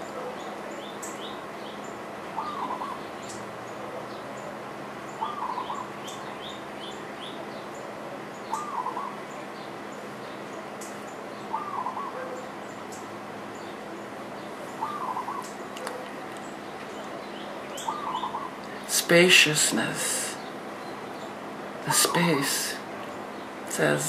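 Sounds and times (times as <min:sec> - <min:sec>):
bird warbling: 0:00.0 - 0:04.5, 0:05.1 - 0:07.4, 0:08.5 - 0:09.2, 0:11.4 - 0:13.0, 0:14.6 - 0:18.9
steady background hiss: 0:00.0 - 0:24.0.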